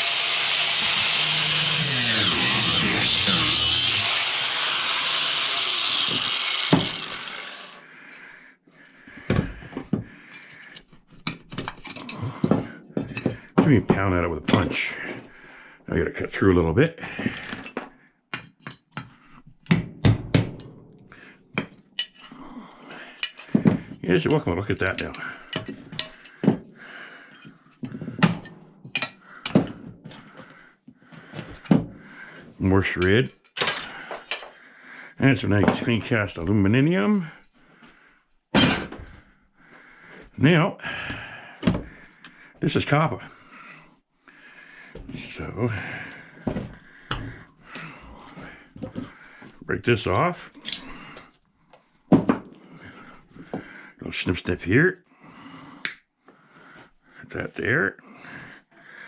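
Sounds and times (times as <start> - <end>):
power tool cutting metal: 0.0 - 7.8.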